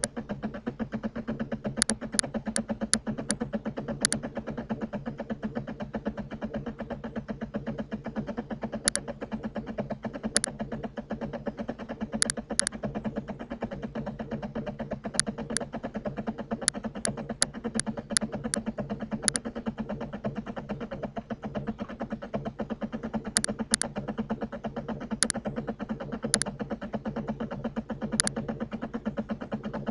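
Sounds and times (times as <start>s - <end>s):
steady buzzing hum: 0.0s - 29.9s
computer mouse clicking: 1.8s - 3.4s, 4.0s - 4.3s, 8.8s - 9.0s, 10.3s - 10.5s, 12.2s - 12.8s, 15.2s - 15.6s, 16.6s - 18.6s, 19.2s - 19.5s, 23.3s - 23.9s, 25.2s - 25.4s, 26.2s - 26.5s, 28.1s - 28.4s.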